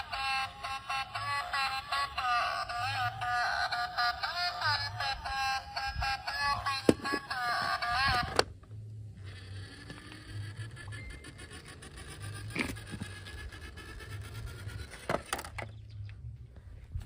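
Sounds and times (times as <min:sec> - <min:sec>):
toy electronic sung tune: 0:00.0 - 0:08.4
toy cars rolling: 0:00.0 - 0:15.9
faint scraping: 0:09.2 - 0:15.7.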